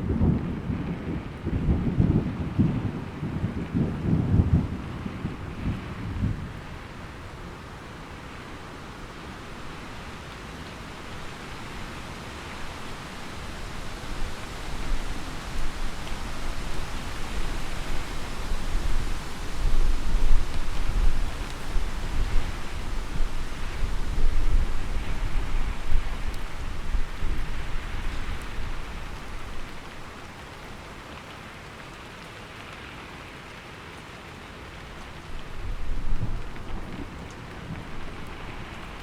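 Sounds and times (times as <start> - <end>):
low thunder rumble: 0.0 - 6.9
heavy rain hissing: 1.9 - 39.0.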